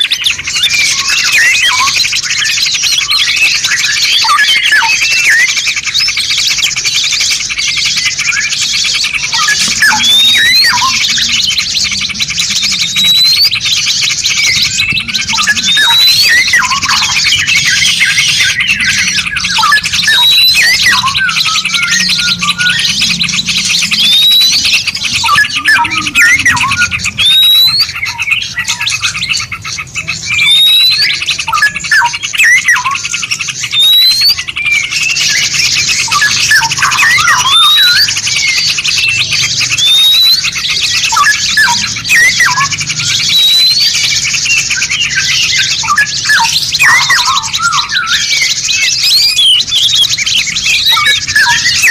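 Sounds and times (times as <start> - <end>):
songbirds chirping and whistling: 0.0 - 51.9
dense high chirring: 16.8 - 29.2.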